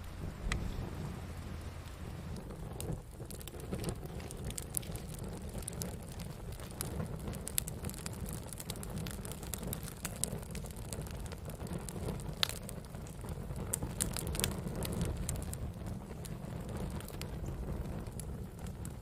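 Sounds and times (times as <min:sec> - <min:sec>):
fire pops and crackles: 0:00.0 - 0:19.0
wood fire rumbling: 0:00.0 - 0:19.0.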